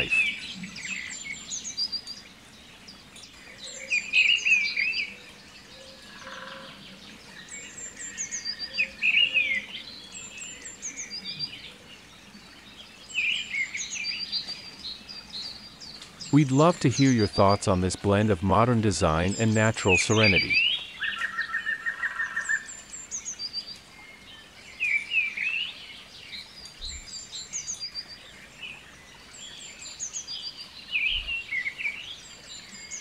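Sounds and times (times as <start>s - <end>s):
birds chirping and singing: 0.0s - 33.0s.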